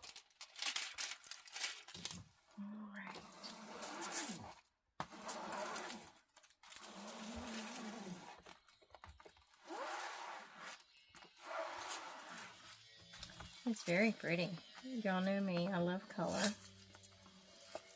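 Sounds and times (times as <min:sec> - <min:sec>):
canvas rustling and crinkling: 0:00.0 - 0:02.3.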